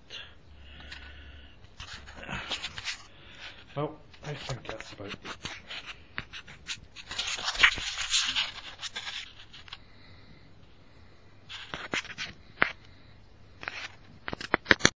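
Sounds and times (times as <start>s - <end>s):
scraping and rubbing: 0.6s - 9.9s, 11.5s - 12.9s, 13.6s - 14.9s.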